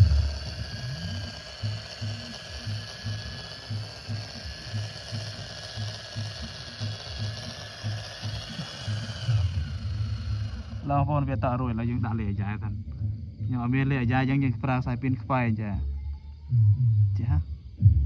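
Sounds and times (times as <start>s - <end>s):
toy tractor motor clicking: 0.0s - 11.0s.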